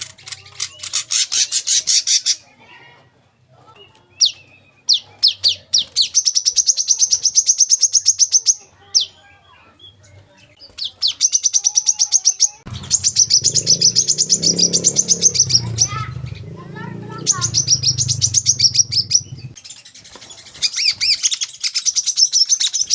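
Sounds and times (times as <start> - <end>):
sunbird singing trills: 4.1 - 20.0.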